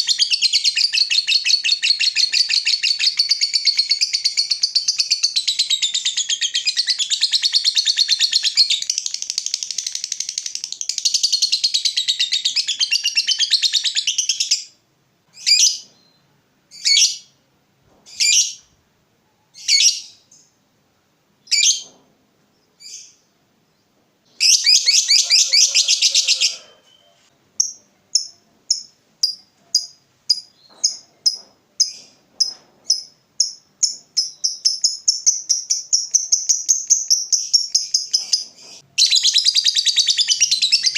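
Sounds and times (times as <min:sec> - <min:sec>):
lovebird chattering trill: 0:24.4 - 0:27.0
lovebird sharp calls: 0:24.4 - 0:32.1.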